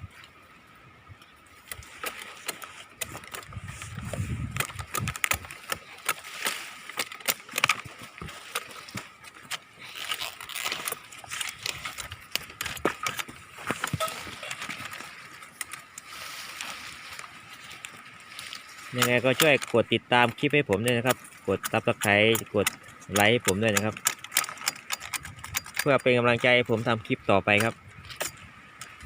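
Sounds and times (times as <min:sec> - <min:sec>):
dry palm fronds crackling: 0:01.5 - 0:29.0
wind gust on microphone: 0:03.4 - 0:05.5.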